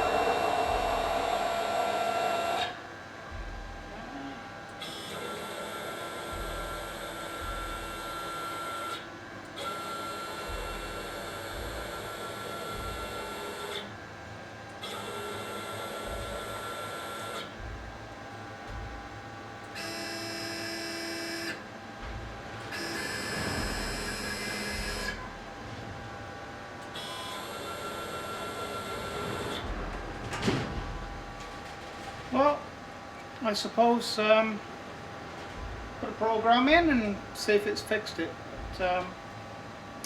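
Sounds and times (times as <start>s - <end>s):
stepper motor whine: 0.0s - 14.0s, 14.7s - 26.2s, 26.8s - 31.8s.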